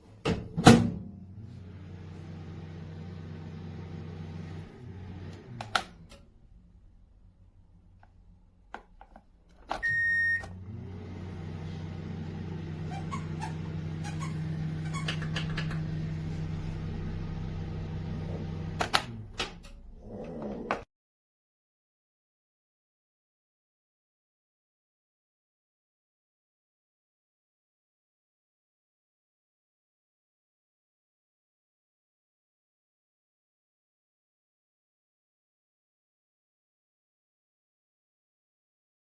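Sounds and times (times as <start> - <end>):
microwave oven humming: 0.5 - 8.4, 9.7 - 20.4
microwave long beep: 9.8 - 11.6
microwave clicks: 14.7 - 16.2.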